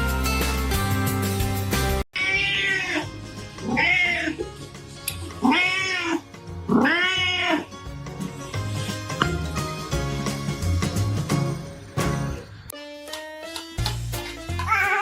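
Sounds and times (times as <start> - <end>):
background music: 0.0 - 15.0
cat meowing: 2.2 - 4.4, 5.4 - 7.8.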